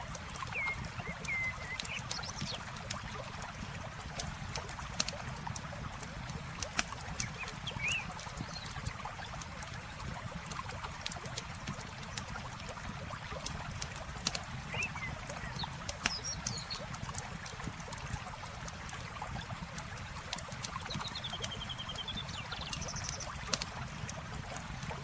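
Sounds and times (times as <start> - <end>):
river water rushing: 0.0 - 2.1
campfire crackling and popping: 0.0 - 25.0.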